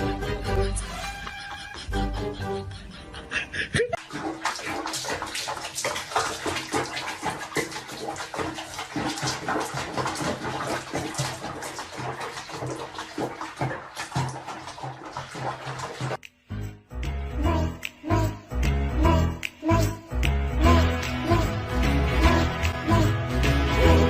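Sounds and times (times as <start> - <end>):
water splashing: 4.0 - 16.2.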